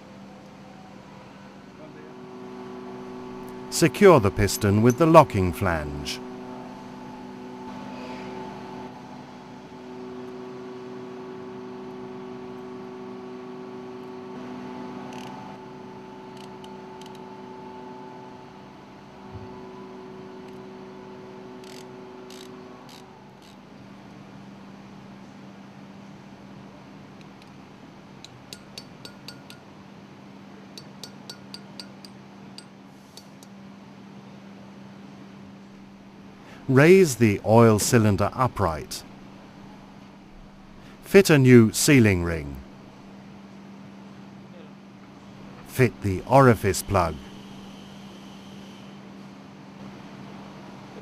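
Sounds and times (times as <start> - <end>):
mechanical hum: 0.0 - 51.0
ringing metallic tool clicks: 28.5 - 29.6, 30.8 - 33.3.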